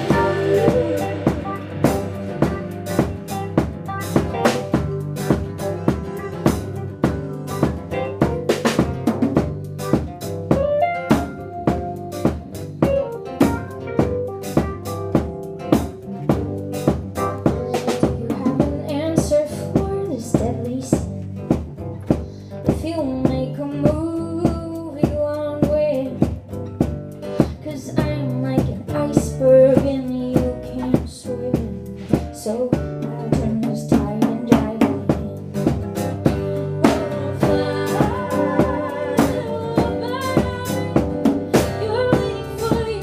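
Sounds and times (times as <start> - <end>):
low bass notes: 0.0 - 18.3
drum kit beat: 0.0 - 43.0.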